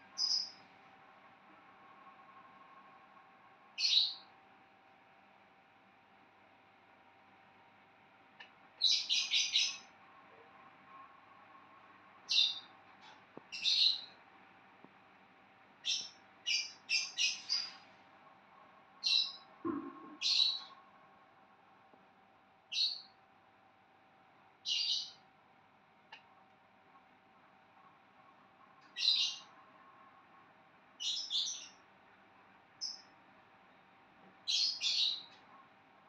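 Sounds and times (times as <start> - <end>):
faint steady hum: 0.0 - 36.0
bird chirping: 0.2 - 0.6, 3.8 - 4.3, 8.8 - 9.9, 12.3 - 12.7, 13.5 - 14.2, 15.8 - 17.8, 19.0 - 20.8, 22.7 - 23.1, 24.6 - 25.2, 28.8 - 29.5, 31.0 - 31.8, 32.8 - 33.1, 34.5 - 35.4.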